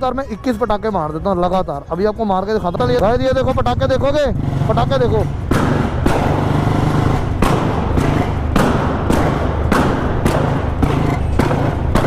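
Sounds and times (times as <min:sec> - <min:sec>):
motorcycle engine rumbling: 0:01.0 - 0:12.0
exhaust backfire pops: 0:05.4 - 0:12.0.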